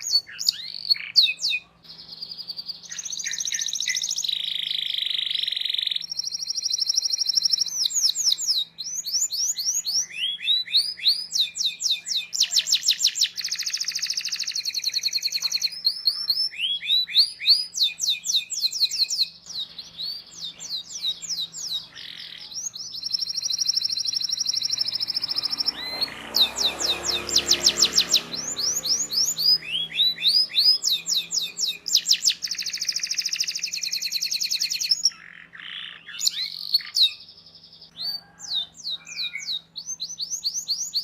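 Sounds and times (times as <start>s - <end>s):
canary singing: 0.0s - 41.0s.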